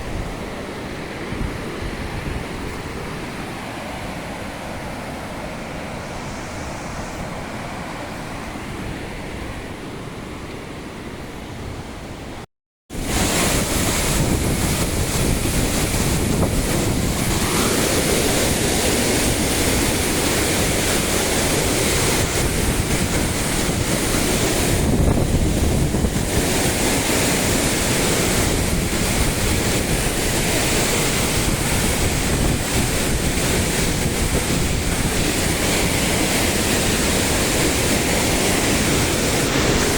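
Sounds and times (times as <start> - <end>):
dull outdoor rush: 0.0 - 39.9
waterfall rushing: 13.0 - 39.9.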